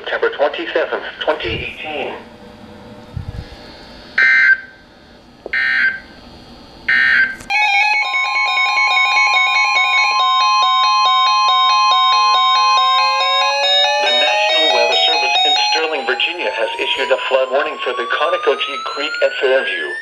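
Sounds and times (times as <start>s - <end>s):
electronic music with chime notes: 7.5s - 18.0s
warbling data bursts: 12.0s - 19.9s.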